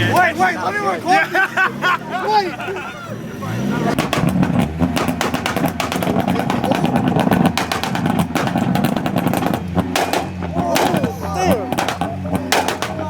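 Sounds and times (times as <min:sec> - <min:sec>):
car engine at high revs: 0:00.0 - 0:13.0
exhaust pops and bangs: 0:03.9 - 0:13.0.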